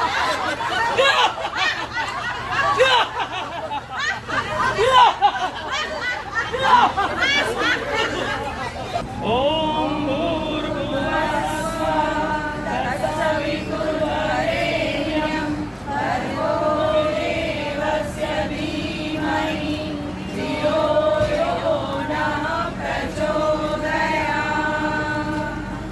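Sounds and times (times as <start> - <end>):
voices chanting in unison: 9.2 - 25.9.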